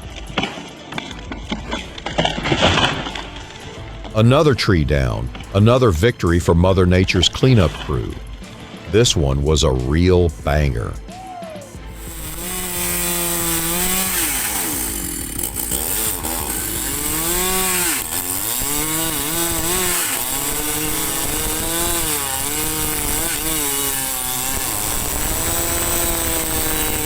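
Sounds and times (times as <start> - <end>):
chainsaw revving and cutting: 0.0 - 11.2, 11.8 - 27.0.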